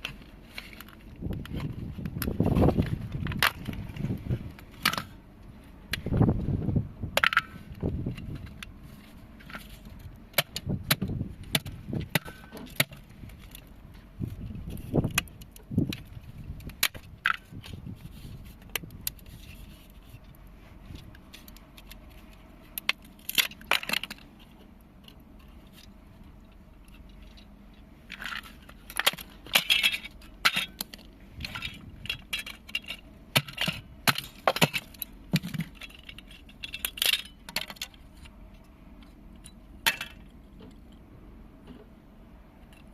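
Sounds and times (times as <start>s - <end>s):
plastic and metal parts cracking: 0.0s - 5.2s, 9.4s - 17.9s, 21.1s - 25.9s, 28.1s - 38.3s.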